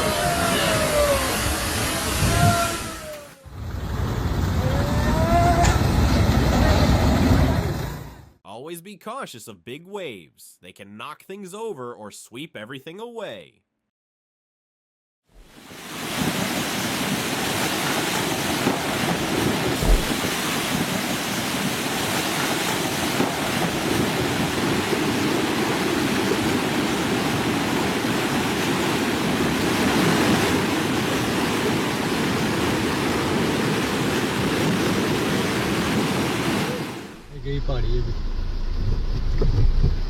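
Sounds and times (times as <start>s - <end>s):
big waves rushing: 0.0s - 8.2s, 15.4s - 37.4s
wind buffeting microphone: 19.2s - 21.0s
low thump: 19.8s - 20.3s.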